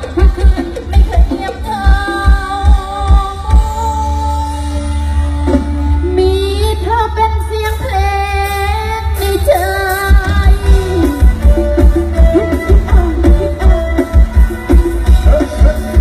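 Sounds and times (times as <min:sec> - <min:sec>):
woman singing over loudspeakers: 0:00.0 - 0:11.6
heavy bass: 0:00.0 - 0:16.0.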